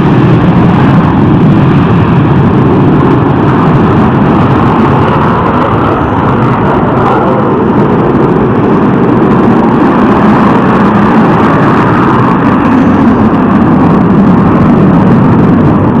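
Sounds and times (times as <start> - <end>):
fighter jet engines roaring: 0.0 - 16.0.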